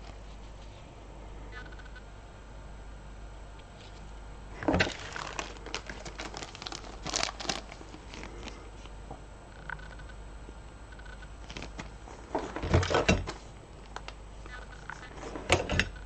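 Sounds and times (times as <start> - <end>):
plastic bag crinkling: 4.5 - 8.9, 11.4 - 15.3.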